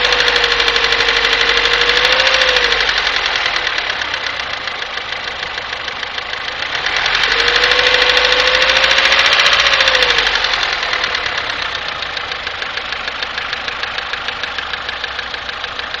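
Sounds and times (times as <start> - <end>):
engine revving with whine: 0.0 - 4.4, 6.6 - 12.0
car engine knocking: 0.0 - 16.0.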